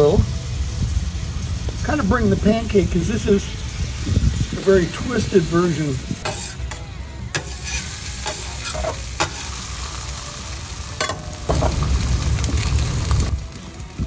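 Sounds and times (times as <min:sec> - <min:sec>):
food sizzling on griddle: 0:00.0 - 0:14.0
metal spatula scraping steel: 0:06.2 - 0:09.9.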